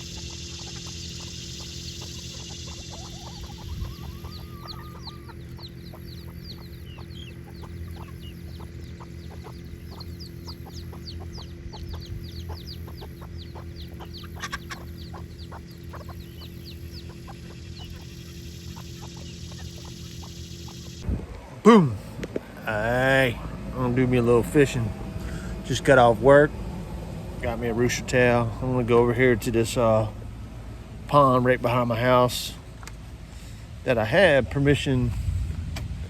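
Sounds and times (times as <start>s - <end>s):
chickens clucking: 0.0s - 21.1s, 27.0s - 30.1s, 31.6s - 34.2s
high falling peeps: 0.0s - 21.1s
low hum: 0.0s - 36.0s.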